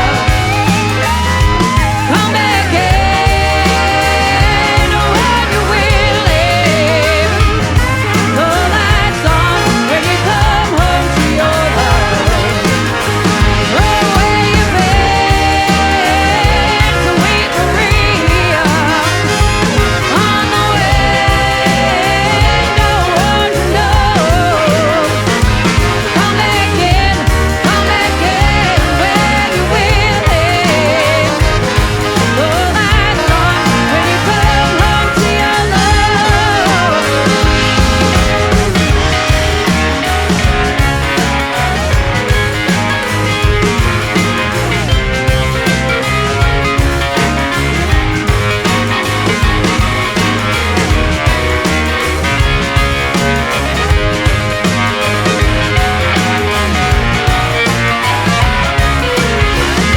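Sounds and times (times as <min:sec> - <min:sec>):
bass line: 0:00.0 - 0:59.9
drums: 0:00.0 - 0:59.9
rock band playing: 0:00.0 - 0:59.9
wavering lead melody: 0:00.0 - 0:59.9.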